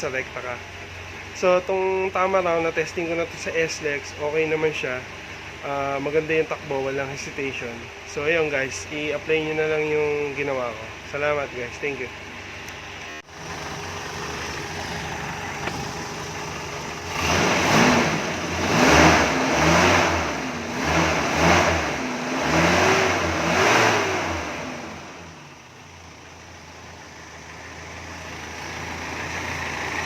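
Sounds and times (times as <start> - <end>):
car engine idling: 0.0 - 30.0
car engine revving: 13.1 - 30.0.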